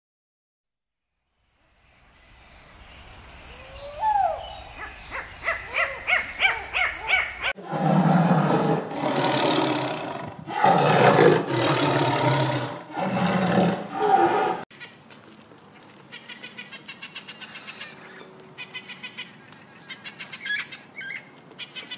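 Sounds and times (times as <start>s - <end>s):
lemur wailing and yelping: 3.9s - 7.6s
tiger roaring: 7.6s - 14.6s.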